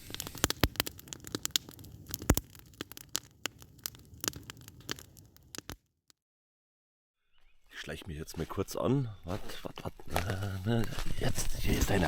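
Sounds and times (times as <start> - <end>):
campfire crackling and popping: 0.0 - 5.9, 9.4 - 12.0.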